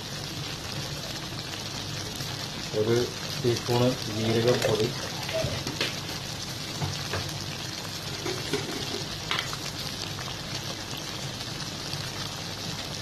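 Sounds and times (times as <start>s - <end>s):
chicken sizzling and bubbling: 0.0s - 13.0s
small crackles: 3.4s - 9.8s.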